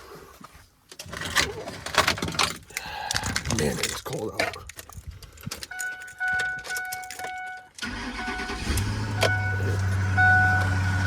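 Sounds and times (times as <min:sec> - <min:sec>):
warning chime beeping: 0:05.7 - 0:11.0
truck engine starting and idling: 0:07.8 - 0:11.0.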